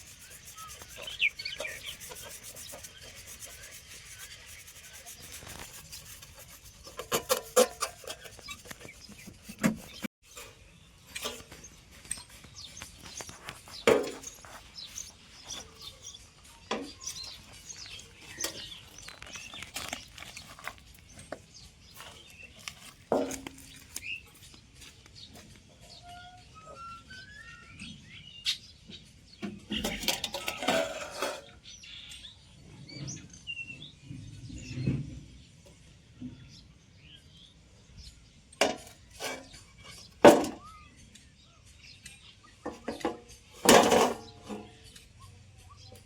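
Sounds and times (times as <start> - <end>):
hand tool rasping and scraping: 0.0 - 16.2, 17.0 - 24.2.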